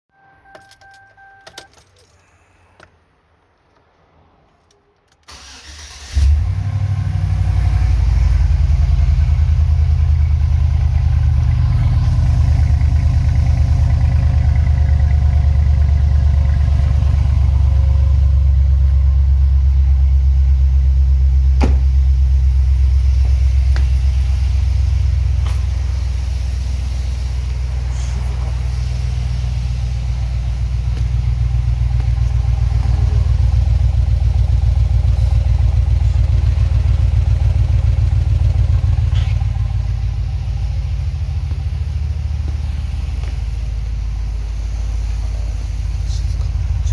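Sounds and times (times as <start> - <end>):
engine cranking: 5.3 - 6.4
engine idling with deep exhaust rumble: 6.3 - 46.9.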